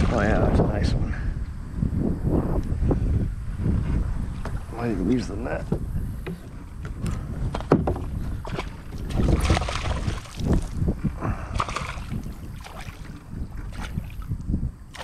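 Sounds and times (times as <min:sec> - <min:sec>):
water splashing and sloshing: 0:00.0 - 0:00.6, 0:03.7 - 0:15.0.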